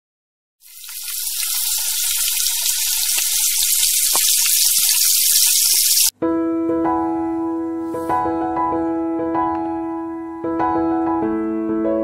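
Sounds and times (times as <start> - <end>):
hot oil sizzling and crackling: 0.6 - 6.1.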